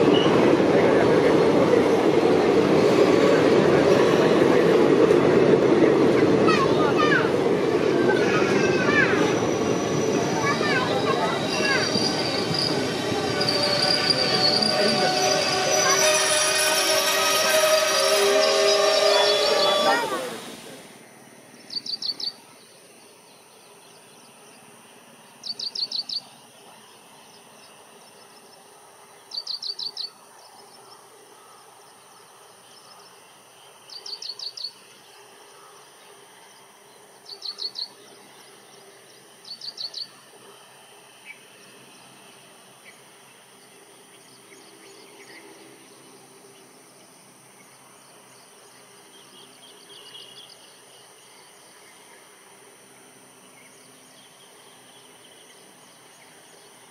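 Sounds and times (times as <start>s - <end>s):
bird calling high notes: 10.4s - 20.4s
faint insect drone: 19.0s - 56.9s.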